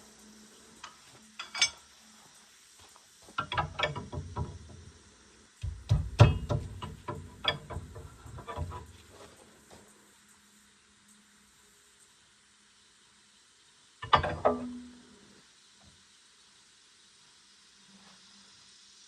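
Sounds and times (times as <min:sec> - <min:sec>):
tools and metal parts clanking: 0:00.8 - 0:01.9, 0:03.4 - 0:04.7, 0:05.6 - 0:09.2, 0:14.0 - 0:15.0.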